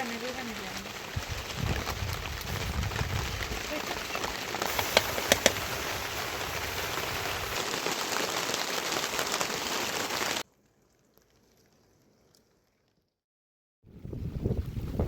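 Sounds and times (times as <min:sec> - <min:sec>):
heavy rain falling: 0:00.0 - 0:10.4.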